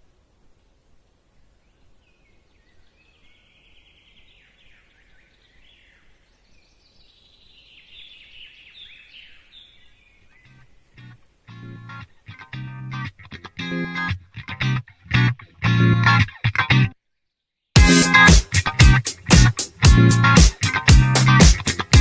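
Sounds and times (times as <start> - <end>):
low background hiss: 0.0 - 16.1
faint birdsong: 1.4 - 13.1.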